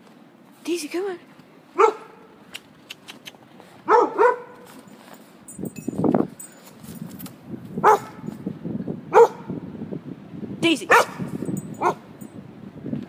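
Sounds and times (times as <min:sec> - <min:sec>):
dog barking: 0:01.8 - 0:02.2, 0:03.9 - 0:04.7, 0:07.8 - 0:08.3, 0:09.1 - 0:09.6, 0:10.9 - 0:12.0.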